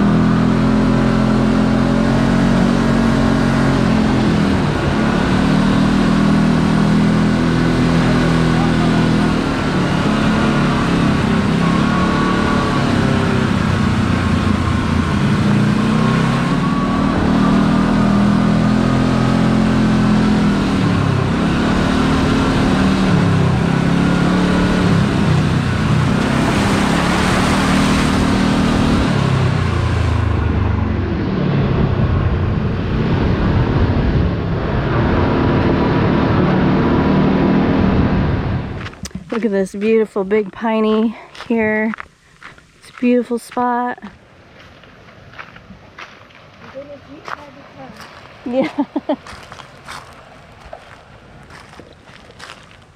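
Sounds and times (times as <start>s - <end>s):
utility vehicle engine running: 0.0s - 41.5s.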